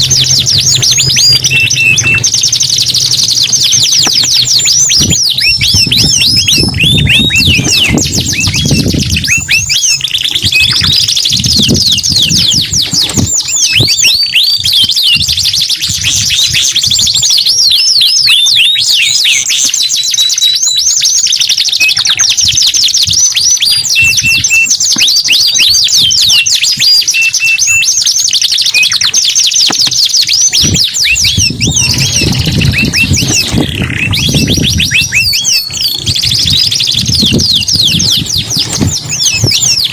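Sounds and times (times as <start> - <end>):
low rumble: 0.0 - 9.7
canaries singing trills: 0.0 - 39.9.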